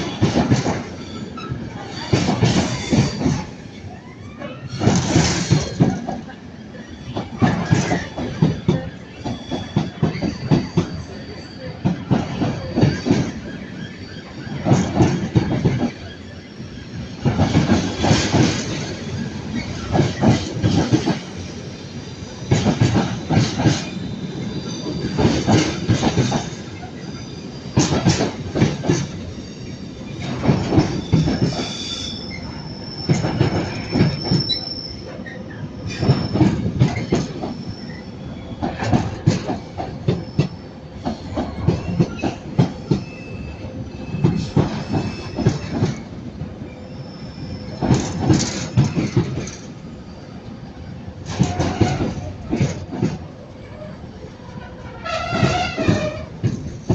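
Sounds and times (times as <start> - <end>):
train wheels clacking over rail joints: 0.0 - 3.5, 4.7 - 6.3, 7.1 - 11.1, 11.8 - 16.2, 17.2 - 21.4, 22.4 - 24.1, 24.9 - 26.9, 27.7 - 29.3, 30.1 - 31.8, 33.0 - 34.6, 35.2 - 37.6, 38.5 - 43.2, 44.0 - 46.1, 47.7 - 49.8, 51.2 - 53.3, 55.0 - 56.9
high wheel squeal: 6.9 - 14.6, 23.8 - 28.1, 29.3 - 38.8, 40.1 - 46.0, 46.7 - 50.2, 53.6 - 56.3.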